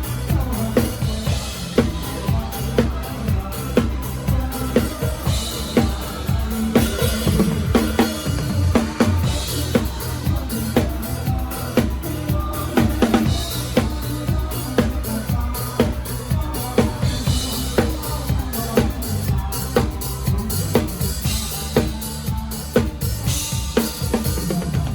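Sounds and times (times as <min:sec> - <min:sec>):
band playing: 0:00.0 - 0:24.9.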